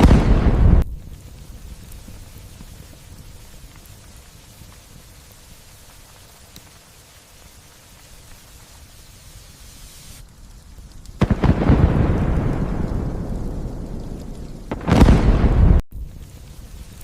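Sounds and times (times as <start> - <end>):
thunder clap rumbling: 0.0 - 2.5, 11.2 - 15.8
light rain hissing: 0.0 - 17.0.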